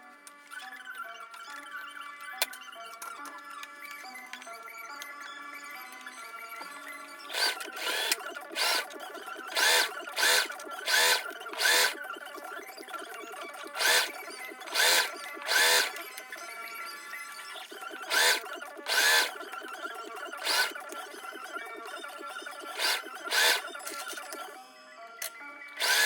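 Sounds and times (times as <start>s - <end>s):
sewing machine motor whine: 7.2s - 16.6s, 17.4s - 24.6s, 25.8s - 26.0s.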